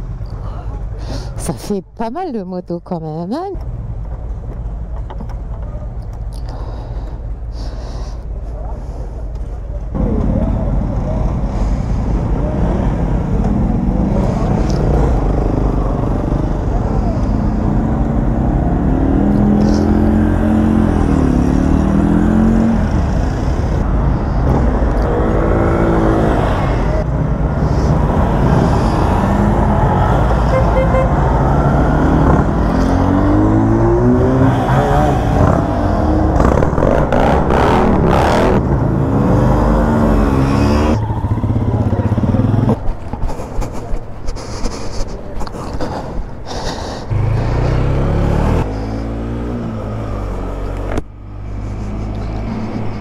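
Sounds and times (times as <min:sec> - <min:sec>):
wind and road noise: 0:00.0 - 0:53.0
motorcycle engine accelerating: 0:09.9 - 0:43.0, 0:47.1 - 0:53.0.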